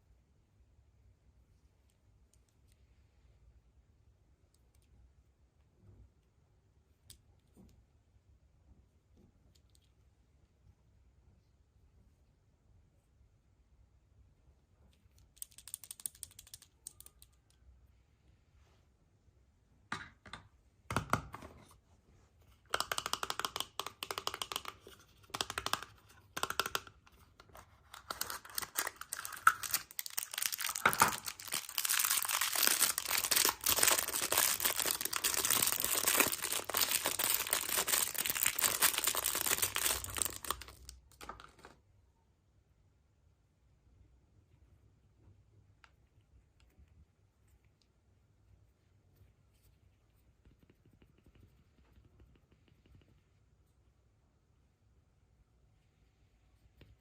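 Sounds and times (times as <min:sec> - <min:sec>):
foil wrapper crinkling: 0:28.0 - 0:40.9.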